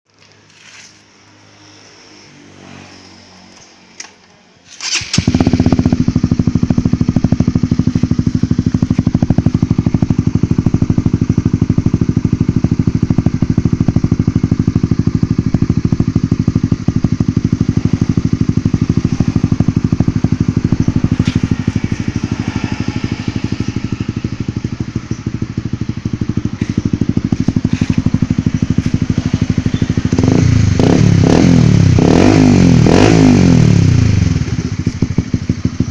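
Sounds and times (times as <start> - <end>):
motorcycle engine starting and idling: 0.1 - 35.9.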